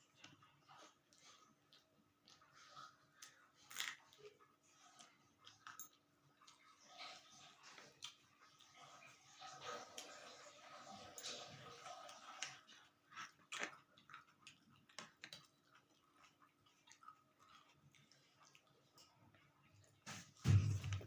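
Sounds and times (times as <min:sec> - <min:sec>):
chewing mouth sounds: 0:11.9 - 0:20.0.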